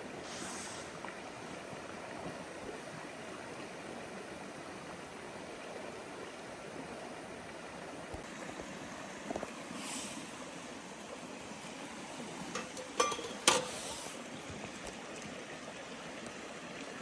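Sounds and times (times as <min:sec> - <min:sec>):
small knocks: 0:12.5 - 0:13.7.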